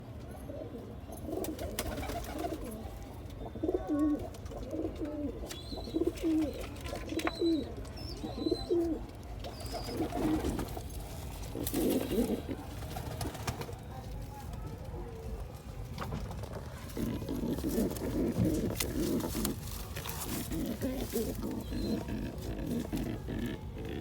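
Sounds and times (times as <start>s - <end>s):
pigeon cooing: 0.5s - 13.8s, 16.5s - 24.0s.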